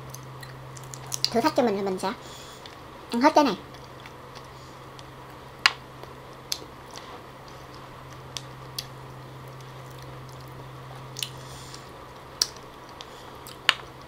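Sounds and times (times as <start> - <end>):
steady low hum: 0.0 - 14.0
wet mouth clicks and smacks: 0.1 - 1.3.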